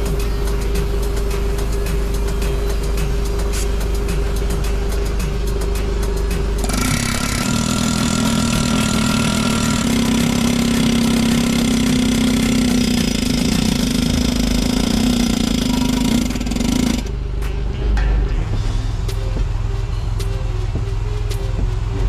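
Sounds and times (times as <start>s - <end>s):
small motor running: 6.6s - 17.2s.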